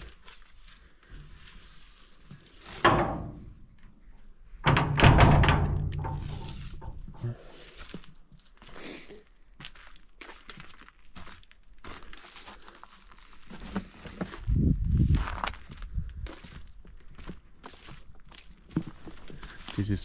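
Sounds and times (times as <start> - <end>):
dull thuds with low ringing: 2.8 - 3.8, 4.6 - 7.4.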